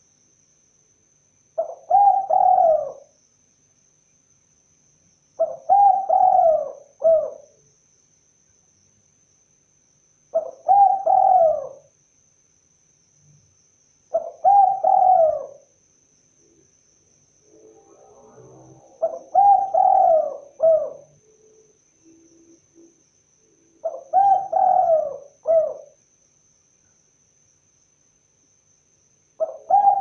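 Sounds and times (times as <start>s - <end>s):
dove cooing: 1.6s - 3.1s, 5.4s - 7.5s, 10.4s - 11.9s, 14.1s - 15.7s, 18.3s - 21.2s, 23.8s - 26.0s, 29.4s - 30.0s.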